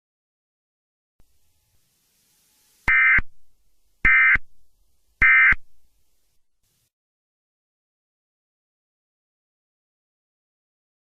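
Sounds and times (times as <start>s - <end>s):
electronic data tone bursts: 2.9s - 3.3s, 4.1s - 4.4s, 5.2s - 5.6s.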